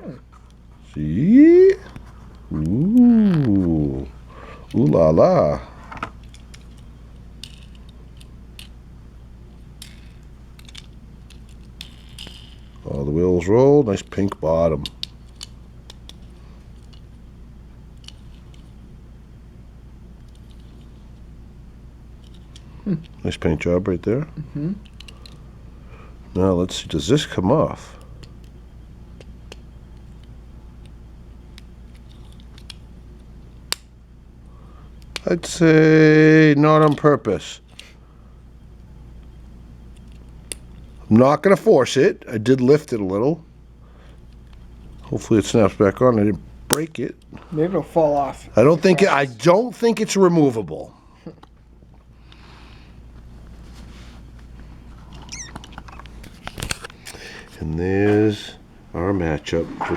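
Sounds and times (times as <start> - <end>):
low steady hum: 0.0 - 59.9
toy car clicking and ticking: 9.8 - 12.7.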